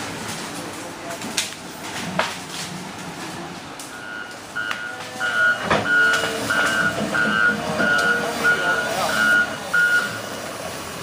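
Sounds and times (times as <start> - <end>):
outdoor noise: 0.0 - 11.0
truck reversing alarm beeping: 3.9 - 10.4.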